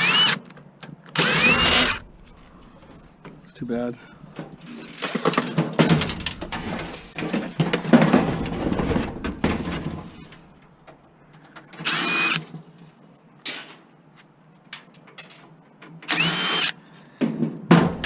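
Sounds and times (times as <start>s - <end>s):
scrap parts clattering: 4.1s - 10.5s
rushing scrape: 6.0s - 10.4s.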